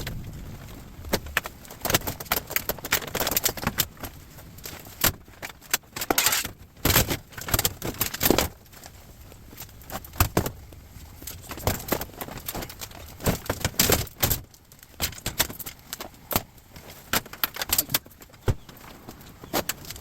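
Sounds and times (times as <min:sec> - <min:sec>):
scrap metal clanking and rattling: 0:04.8 - 0:08.2.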